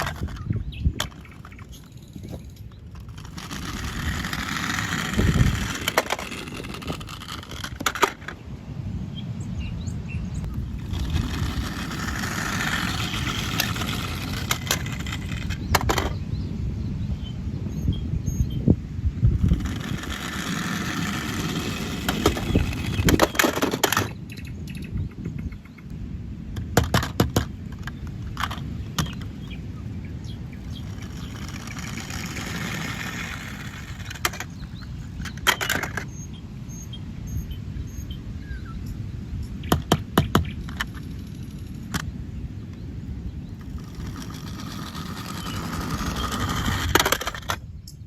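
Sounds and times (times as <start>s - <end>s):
plastic toy vehicles rolling: 0.0s - 8.4s, 10.5s - 16.2s, 19.4s - 24.3s, 26.6s - 36.2s, 39.7s - 42.2s, 43.5s - 47.7s
plastic clacks and knocks: 26.6s - 29.3s.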